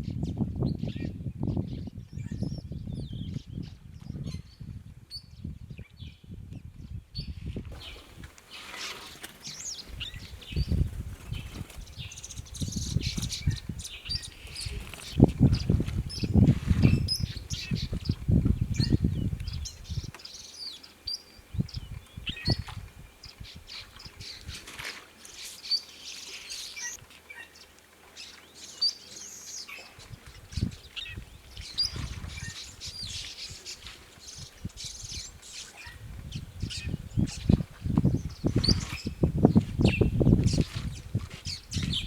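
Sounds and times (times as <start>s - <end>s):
birds chirping and calling: 7.8s - 24.7s, 25.4s - 42.0s.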